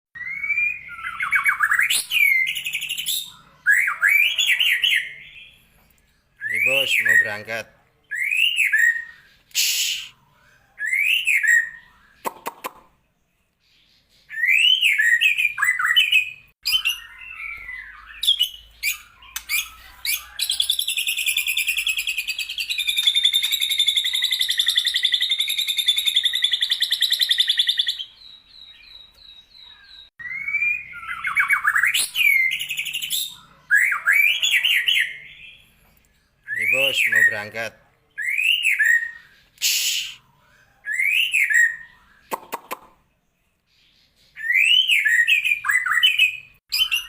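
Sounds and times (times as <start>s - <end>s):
bird singing whistles and chirps: 0.2s - 7.4s, 8.1s - 37.6s, 38.2s - 47.0s
fast chattering bird trill: 6.5s - 7.7s, 18.2s - 28.0s, 36.6s - 37.8s.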